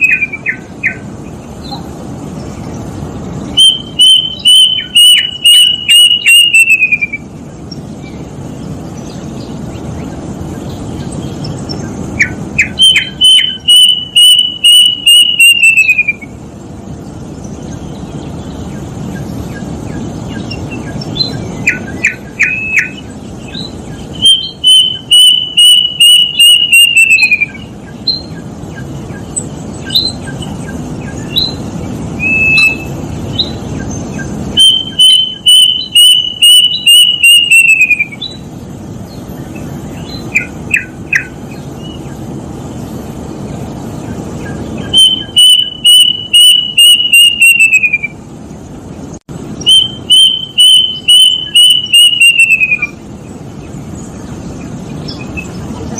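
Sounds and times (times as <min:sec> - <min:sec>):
cuckoo whistled song: 0:00.0 - 0:01.0, 0:03.5 - 0:07.4, 0:11.7 - 0:16.4, 0:20.3 - 0:38.5, 0:40.0 - 0:42.0, 0:44.4 - 0:48.2, 0:49.6 - 0:53.0
low background noise: 0:00.0 - 0:55.9.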